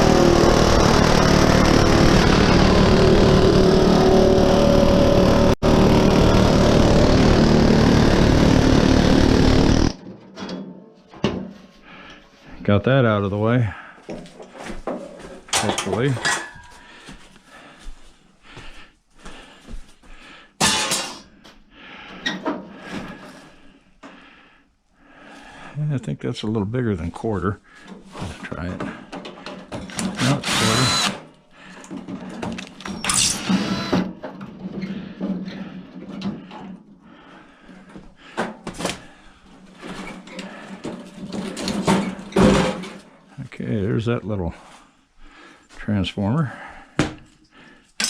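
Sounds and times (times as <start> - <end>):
metal tools clanking on table: 15.5 - 16.7.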